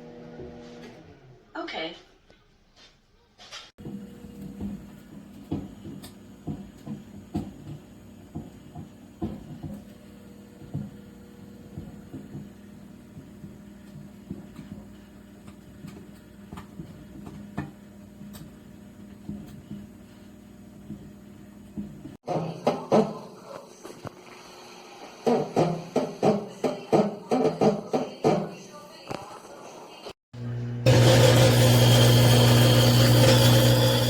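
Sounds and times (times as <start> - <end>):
microwave oven humming: 0.0 - 1.0, 3.8 - 22.2, 30.4 - 34.0.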